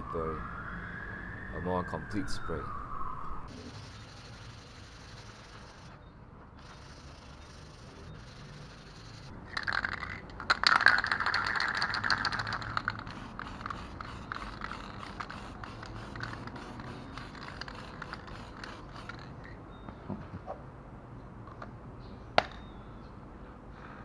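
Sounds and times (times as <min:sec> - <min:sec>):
aerosol can rattling clicks: 0:09.5 - 0:19.6
aerosol spray hissing: 0:12.4 - 0:19.3.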